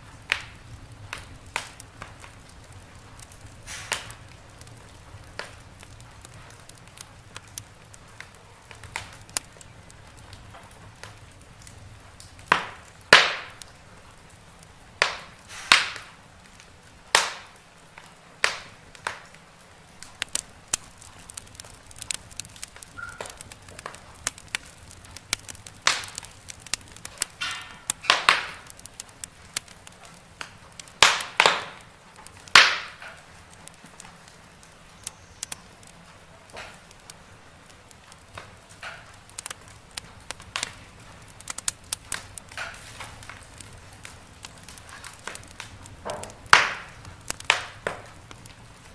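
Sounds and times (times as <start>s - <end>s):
faint steady hiss: 0.0s - 48.9s
wood fire crackling: 0.0s - 48.9s.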